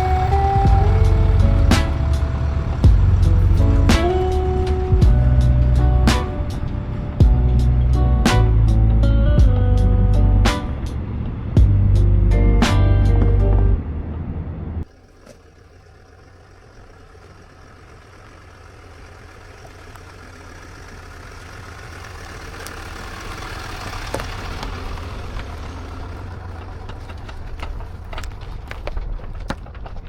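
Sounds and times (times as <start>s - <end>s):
rushing noise: 0.0s - 14.8s
vehicle engine humming: 0.0s - 30.0s.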